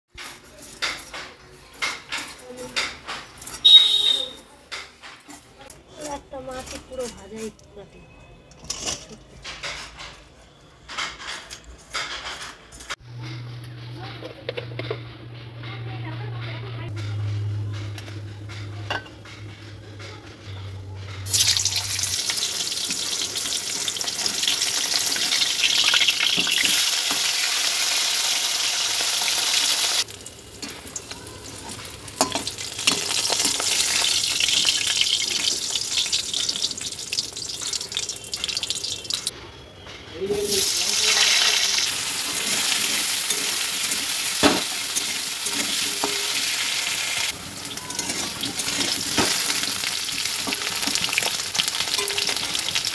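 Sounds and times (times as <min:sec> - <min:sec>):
fish frying in hot oil: 0:21.3 - 0:39.3, 0:40.4 - 0:52.9.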